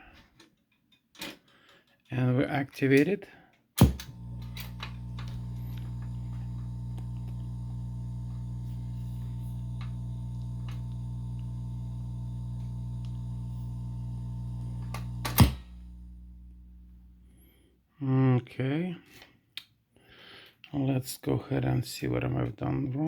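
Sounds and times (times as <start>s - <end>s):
loud switch click: 3.8s - 5.9s, 14.8s - 15.8s
electrical mains hum: 3.8s - 17.6s
faint crackles: 4.1s - 17.2s.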